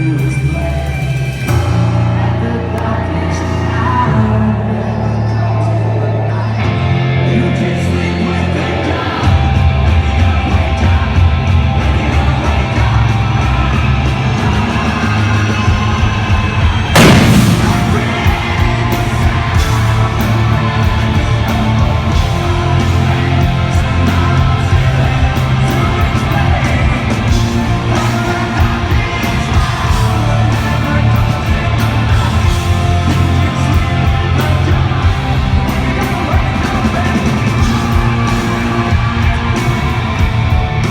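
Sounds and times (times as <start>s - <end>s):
live hard rock band: 0.0s - 40.9s
loud crash: 17.0s - 20.5s.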